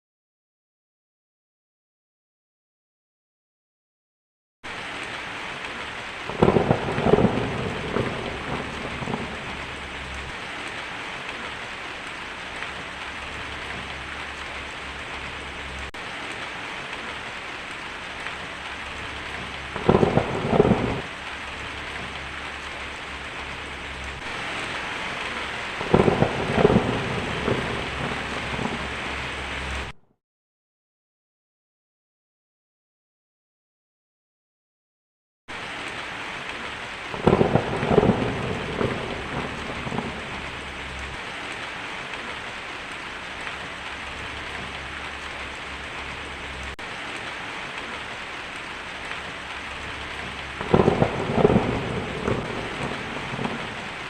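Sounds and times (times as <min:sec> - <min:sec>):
crackling thunder claps: 0:04.7 - 0:16.1, 0:18.0 - 0:30.0, 0:35.5 - 0:42.5, 0:48.6 - 0:54.0
rain drumming on a tin roof: 0:04.7 - 0:30.0, 0:35.5 - 0:54.0.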